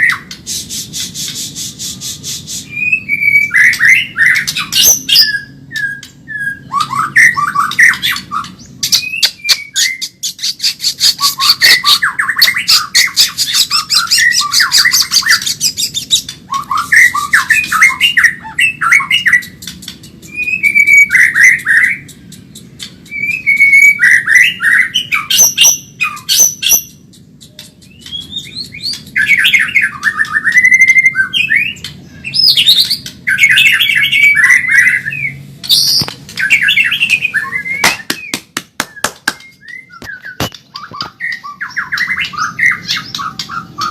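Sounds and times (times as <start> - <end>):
bird singing whistles and chatter: 0.0 - 43.9
bird rapid clicking notes: 6.8 - 30.9, 35.6 - 43.9.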